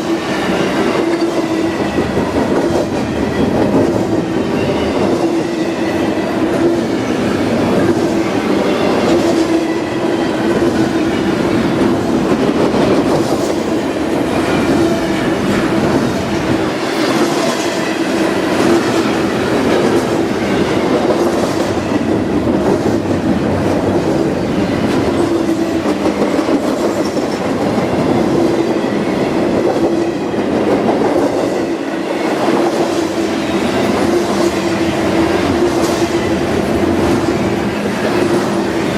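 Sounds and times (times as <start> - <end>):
freight train wheels clacking: 0.0 - 38.9
train rumble with hum: 0.0 - 38.9.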